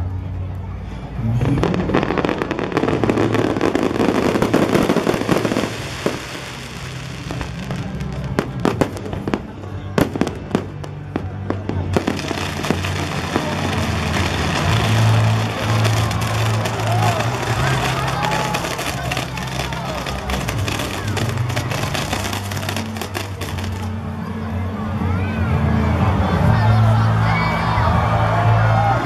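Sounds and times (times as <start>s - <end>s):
music: 0.0s - 29.0s
fireworks crackling and bursting: 1.3s - 24.0s.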